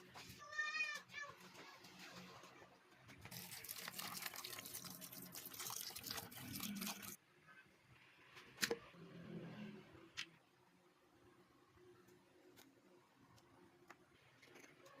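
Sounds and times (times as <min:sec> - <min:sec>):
liquid splashing: 0:03.3 - 0:07.2.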